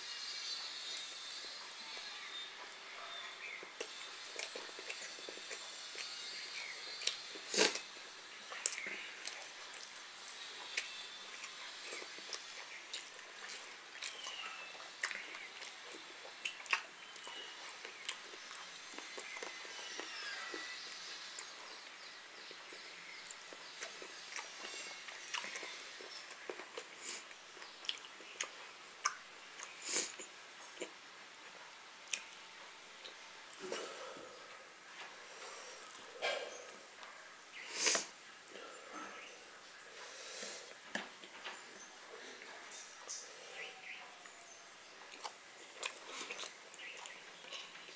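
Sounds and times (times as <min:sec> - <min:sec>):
person chewing food: 0:03.4 - 0:21.7, 0:22.4 - 0:31.0, 0:45.0 - 0:47.9.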